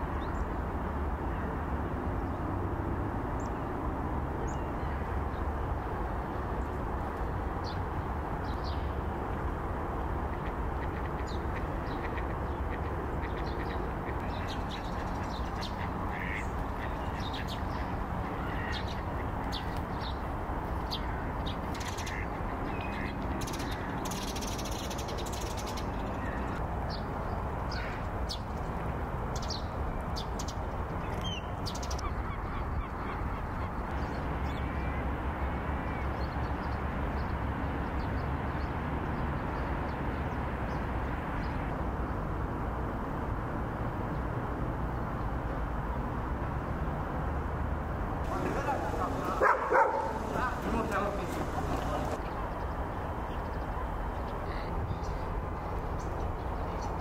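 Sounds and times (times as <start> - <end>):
birds calling: 10.3 - 26.6, 48.3 - 52.3.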